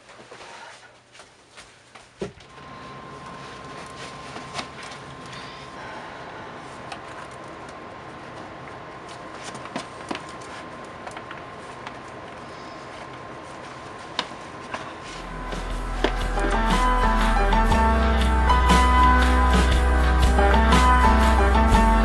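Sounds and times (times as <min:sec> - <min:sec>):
thin high tone: 0:15.2 - 0:22.0.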